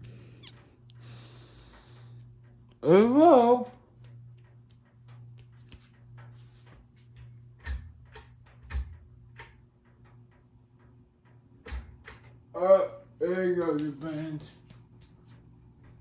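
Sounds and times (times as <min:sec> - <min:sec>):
ticking clicks: 0:00.0 - 0:12.6
ceiling fan motor hum: 0:00.0 - 0:16.0.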